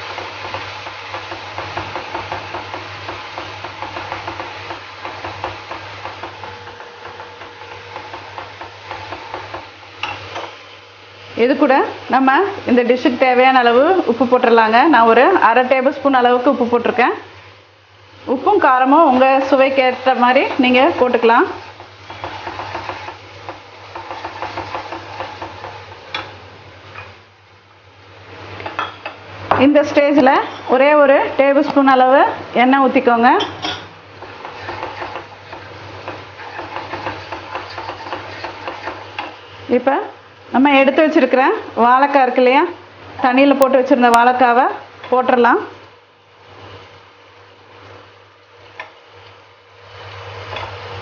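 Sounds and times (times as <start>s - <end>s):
oil sizzling: 0.0s - 51.0s
spatula scraping a pan: 20.2s - 26.0s, 33.7s - 39.6s.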